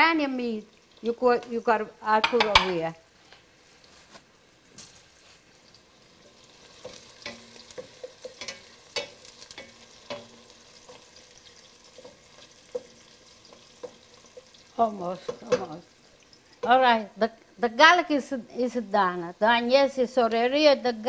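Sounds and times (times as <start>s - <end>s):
onions frying in oil: 0.0s - 21.0s
wooden spatula knocking on pot: 2.2s - 2.8s, 15.2s - 15.8s.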